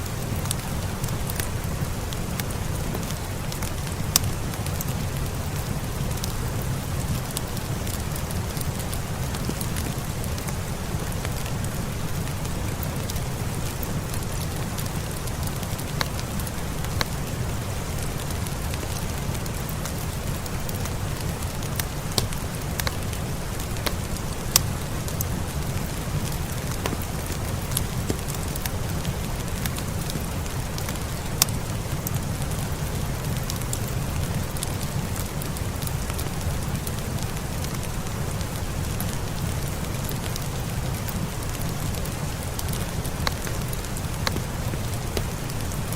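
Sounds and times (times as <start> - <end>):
steady rain: 0.0 - 45.9
wood fire crackling and popping: 0.0 - 45.9.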